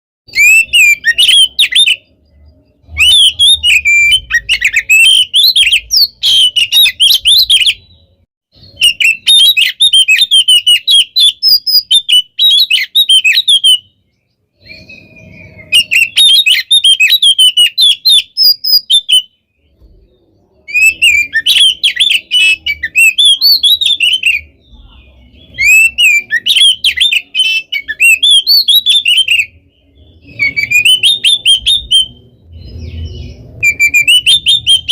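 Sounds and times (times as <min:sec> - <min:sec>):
songbird chattering and trilling: 0:00.3 - 0:34.9.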